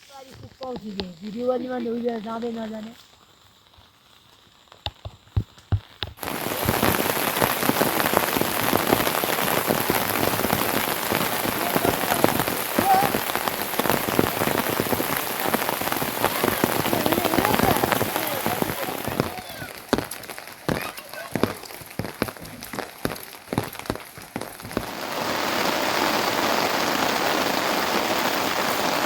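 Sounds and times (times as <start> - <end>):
heavy rain pattering: 0.0 - 29.0.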